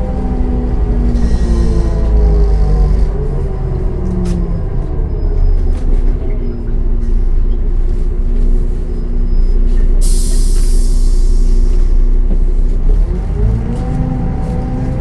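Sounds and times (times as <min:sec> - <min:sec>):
bus diesel engine running: 0:00.0 - 0:15.0
compressed air hissing: 0:10.0 - 0:11.8.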